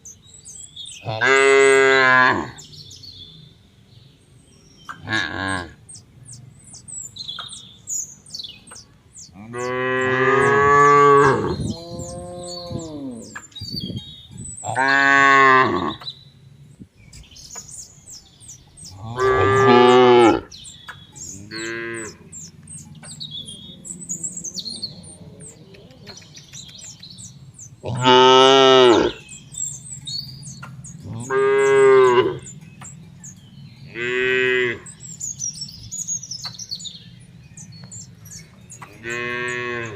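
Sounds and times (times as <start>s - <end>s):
small birds chirping: 0.0s - 39.9s
cows mooing: 1.1s - 2.6s, 5.1s - 5.8s, 9.4s - 13.4s, 14.6s - 16.1s, 18.9s - 20.5s, 21.3s - 22.4s, 27.8s - 29.2s, 31.1s - 32.6s, 33.9s - 35.0s, 39.0s - 39.9s.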